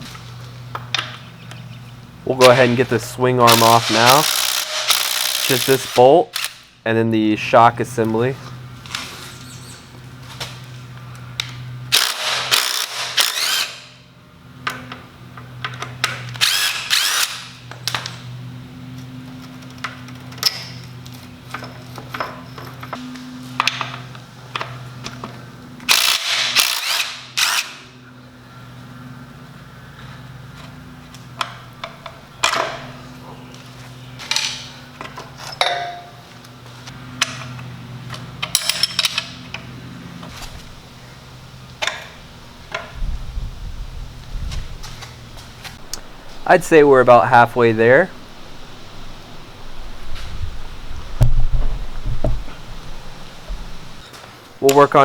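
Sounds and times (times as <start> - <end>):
impact driver hammering: 11.9 - 13.9, 25.9 - 27.8
tools and parts clattering: 19.0 - 27.8, 31.3 - 33.1, 34.2 - 36.4, 37.1 - 40.4.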